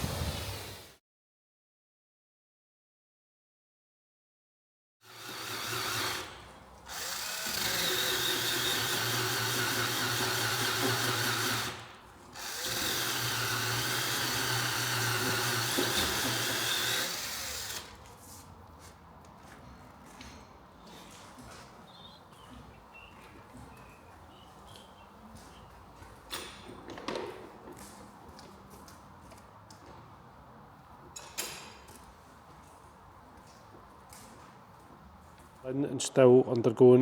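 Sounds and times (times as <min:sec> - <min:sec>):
power tool motor whirring: 0:05.1 - 0:11.8, 0:12.4 - 0:18.0.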